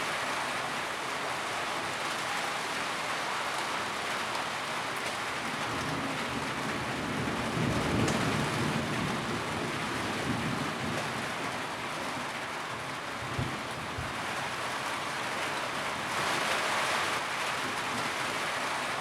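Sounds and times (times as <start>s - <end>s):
rain drumming on a tin roof: 0.0s - 19.0s.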